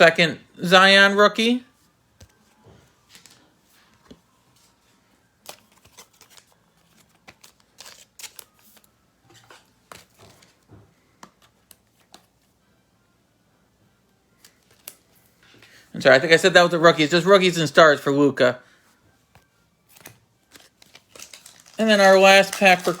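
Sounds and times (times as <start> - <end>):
trading cards rustling: 2.2 - 4.8, 5.4 - 12.5, 14.4 - 17.5, 19.3 - 23.0.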